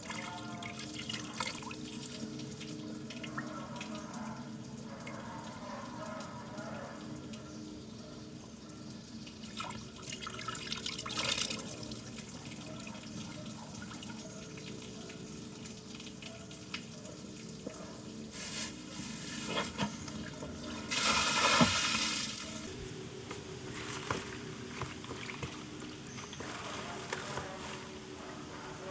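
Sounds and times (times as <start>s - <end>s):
water splashing and pouring: 18.3s - 22.7s.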